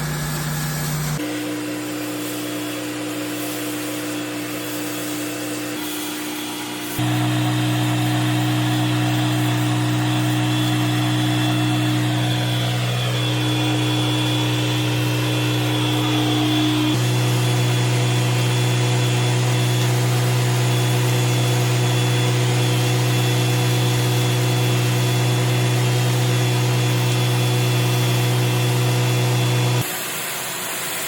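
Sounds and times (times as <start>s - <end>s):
pressure washer motor hum: 6.6s - 29.9s.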